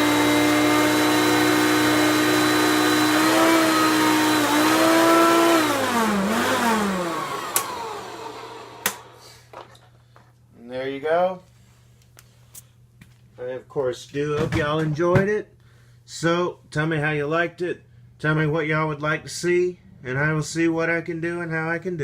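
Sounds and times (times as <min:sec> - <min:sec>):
vacuum cleaner running: 0:00.0 - 0:09.3.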